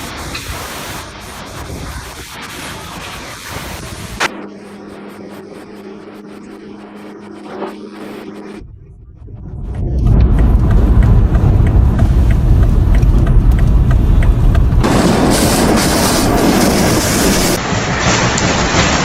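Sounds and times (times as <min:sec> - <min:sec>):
wind buffeting microphone: 0:08.5 - 0:19.0.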